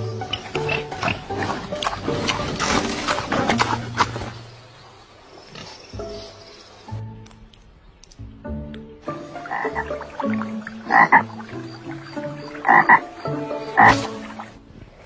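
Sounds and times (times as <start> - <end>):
animal croaking calls: 9.4 - 14.3.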